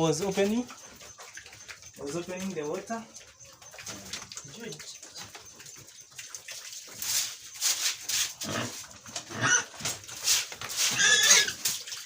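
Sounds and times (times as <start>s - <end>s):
pigs squealing and grunting: 8.0s - 12.0s.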